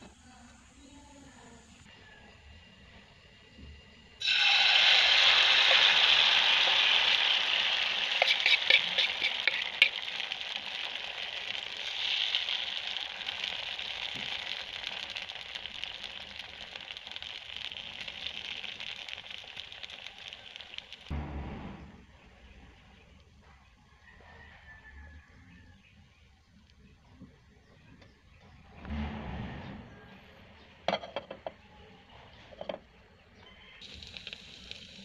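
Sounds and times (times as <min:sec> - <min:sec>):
batter sizzling in hot oil: 0:01.9 - 0:21.1, 0:33.7 - 0:35.0
metal spoon clicking on pan: 0:08.1 - 0:10.0.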